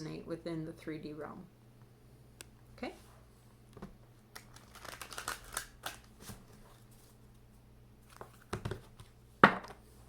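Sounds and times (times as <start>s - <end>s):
cards being shuffled: 4.3s - 7.2s, 8.0s - 9.2s.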